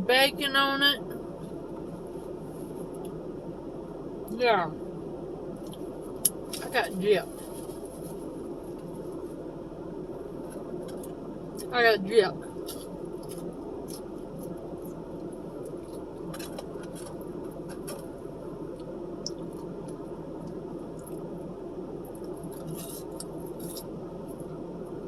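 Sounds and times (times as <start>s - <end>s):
steady low hum: 0.0s - 25.0s
food handling clicks and crackles: 15.6s - 18.2s
quiet chewing: 22.1s - 23.9s.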